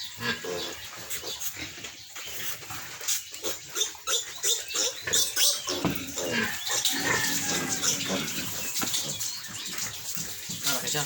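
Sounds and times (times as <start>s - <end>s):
piglets squealing: 3.4s - 9.3s.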